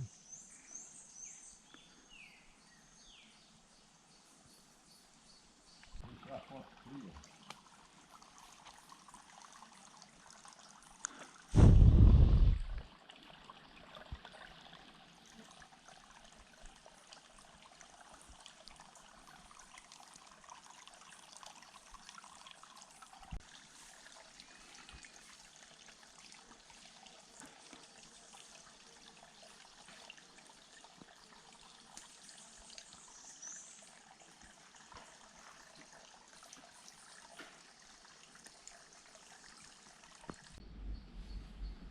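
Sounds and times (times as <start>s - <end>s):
faint trickling water: 0.0s - 11.6s, 12.3s - 40.6s
short thud: 11.6s - 12.8s
loud low rumble: 11.6s - 12.9s.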